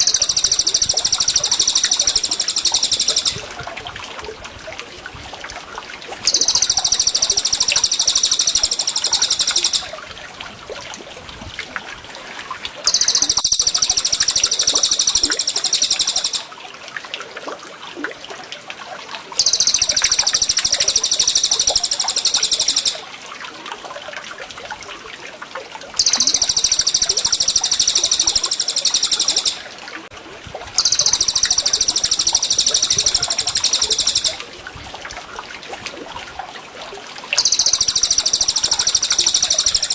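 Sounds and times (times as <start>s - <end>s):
songbird rapid trilled song: 0.0s - 3.4s, 6.3s - 9.9s, 12.9s - 16.5s, 19.4s - 23.0s, 26.0s - 29.6s, 30.8s - 34.4s, 37.4s - 39.9s
gurgling water trickling: 0.0s - 39.9s.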